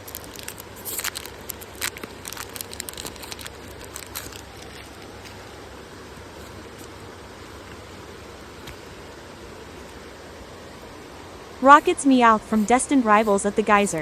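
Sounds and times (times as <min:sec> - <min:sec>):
foil wrapper crinkling: 0:00.0 - 0:05.6
steady hiss: 0:00.0 - 0:14.0.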